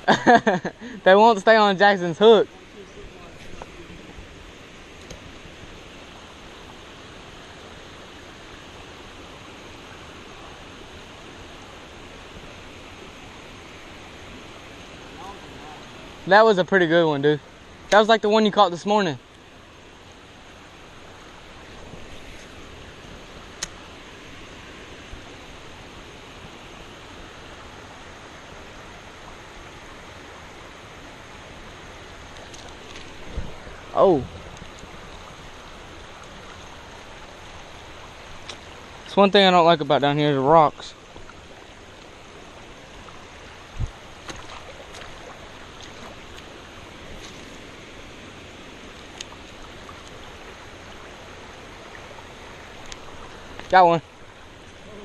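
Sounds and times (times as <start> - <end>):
water running over rocks: 0.0 - 55.0.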